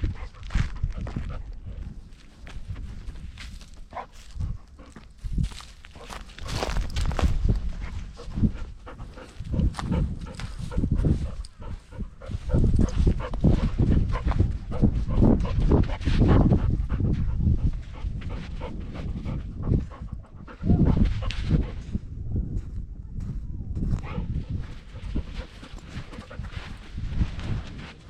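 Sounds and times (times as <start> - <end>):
dog panting: 5.9 - 21.8, 24.1 - 27.0.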